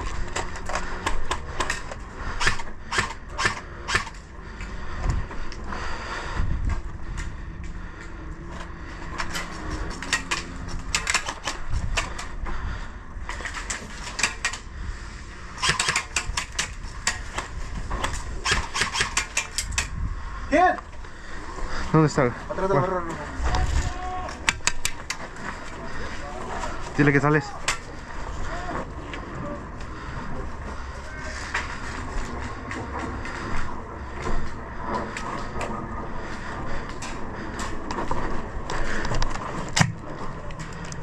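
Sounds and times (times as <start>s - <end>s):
airsoft guns firing: 15.6s - 17.2s, 18.4s - 19.6s.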